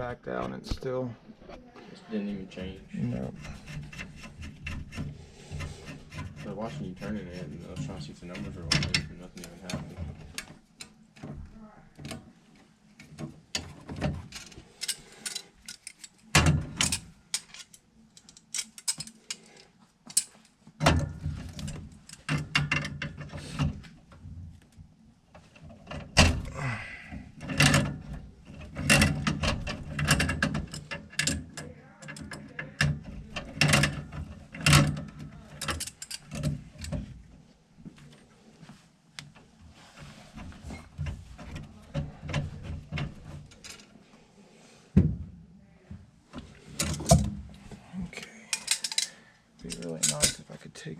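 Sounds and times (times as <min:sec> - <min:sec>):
hand tools clanking on metal: 0:03.1 - 0:10.5, 0:13.5 - 0:23.8, 0:26.2 - 0:37.0, 0:48.2 - 0:50.6.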